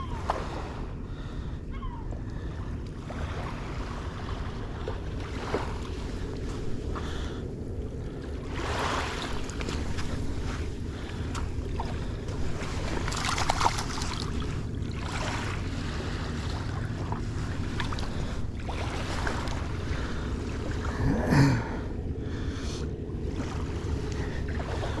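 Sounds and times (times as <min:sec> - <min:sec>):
water noise: 0:00.0 - 0:25.0
wind: 0:00.0 - 0:25.0.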